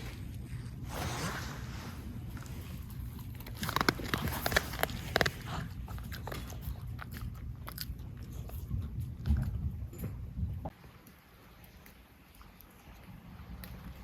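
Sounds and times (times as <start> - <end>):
crunchy chewing: 0.0 - 9.9.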